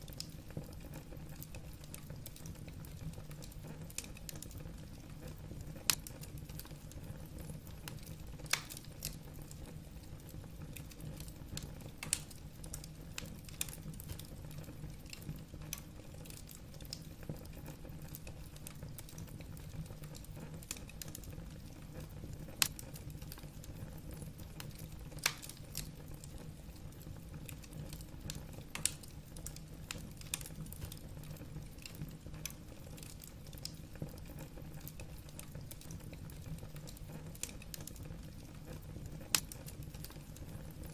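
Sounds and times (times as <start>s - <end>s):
burning logs crackling: 0.0s - 40.9s
sharp pops of fire: 7.8s - 9.2s, 10.8s - 14.3s, 22.4s - 23.4s, 24.6s - 26.0s, 27.5s - 31.0s, 39.0s - 40.2s.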